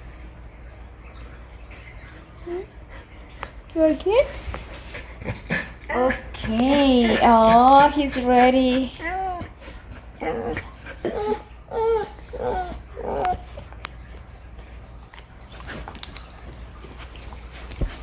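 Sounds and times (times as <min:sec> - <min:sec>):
dog whimpering: 0:05.9 - 0:13.7.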